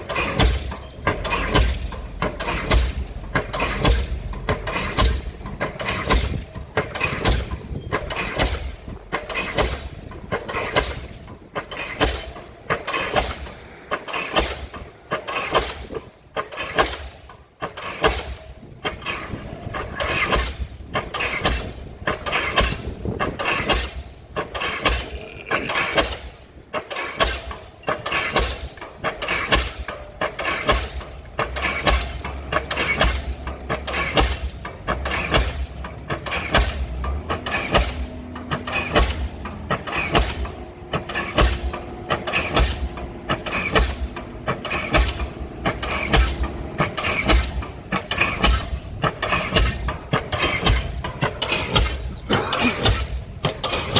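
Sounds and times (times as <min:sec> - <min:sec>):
pile hammer striking: 0:00.0 - 0:18.4.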